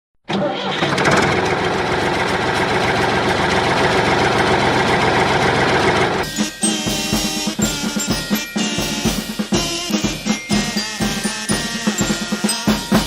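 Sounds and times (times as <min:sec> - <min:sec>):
engine idling: 0:00.8 - 0:06.3.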